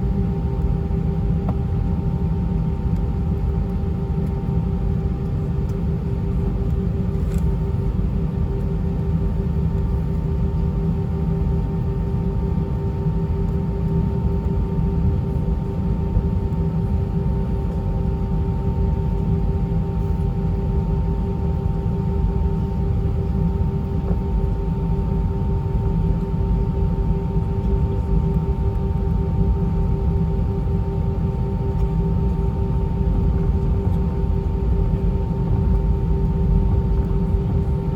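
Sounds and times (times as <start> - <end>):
aircraft engines rumbling: 0.0 - 37.9.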